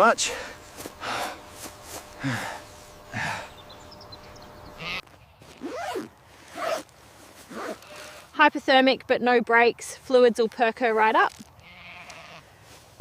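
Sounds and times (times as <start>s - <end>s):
person gasping and sighing: 2.2s - 3.6s.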